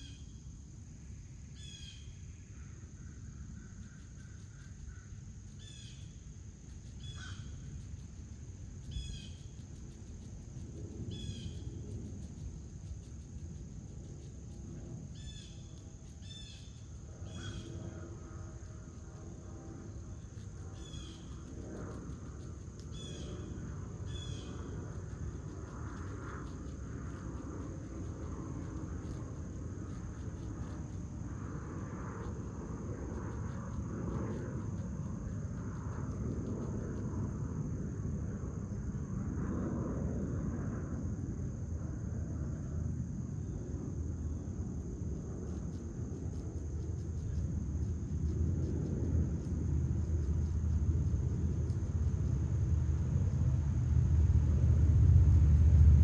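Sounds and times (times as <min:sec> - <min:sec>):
small bird chirping: 0:00.0 - 0:00.4, 0:01.5 - 0:37.1, 0:45.4 - 0:53.5
high insect drone: 0:00.0 - 0:56.0
low outdoor rumble: 0:00.0 - 0:56.0.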